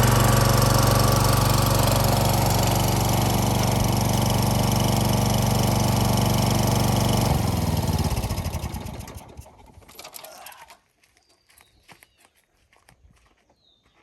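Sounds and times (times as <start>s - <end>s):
engine running: 0.0s - 10.6s.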